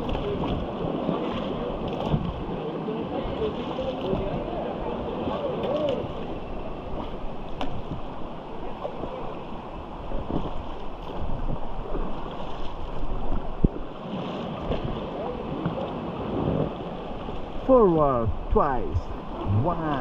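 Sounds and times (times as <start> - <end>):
faint voices: 0.0 - 7.3, 17.8 - 20.0
river water rushing: 0.0 - 20.0.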